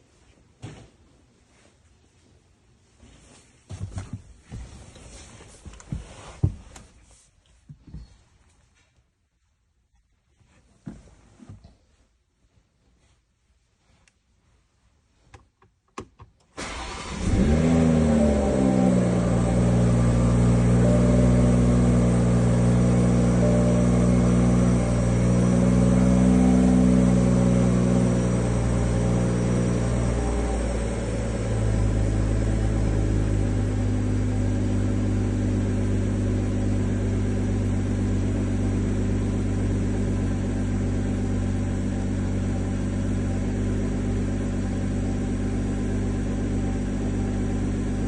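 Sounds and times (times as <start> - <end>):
car engine idling: 16.6 - 48.0.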